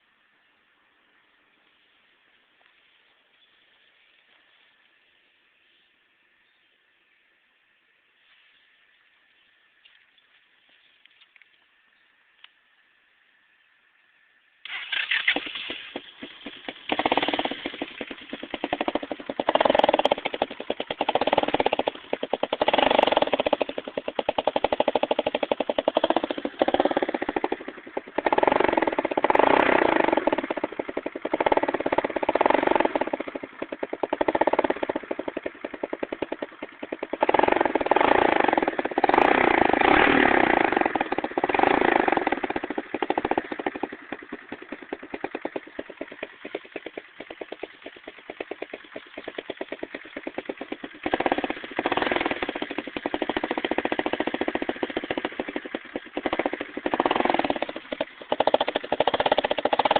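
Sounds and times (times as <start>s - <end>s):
atv engine revving: 14.6s - 59.9s.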